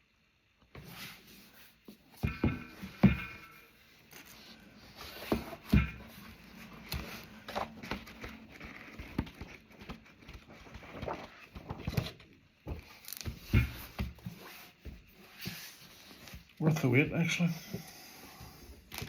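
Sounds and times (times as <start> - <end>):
soft knocks and thumps: 1.9 - 3.7, 4.4 - 16.4
book pages rustling and turning: 3.8 - 19.0.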